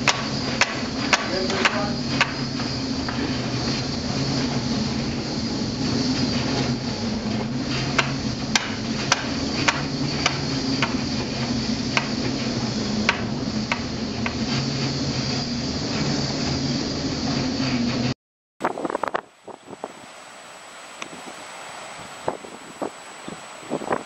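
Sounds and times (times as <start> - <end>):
sharp clicks and knocks: 0.0 - 3.3, 7.7 - 11.0, 13.0 - 14.5
rushing sea: 0.0 - 24.0
ship engine drone: 0.0 - 24.0.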